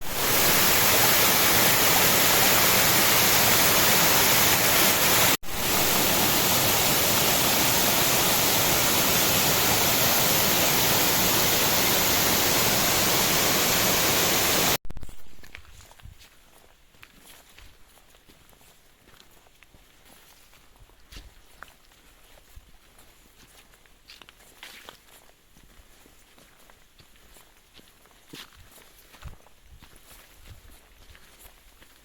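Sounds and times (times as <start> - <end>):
waterfall rushing loudly: 0.0 - 14.8.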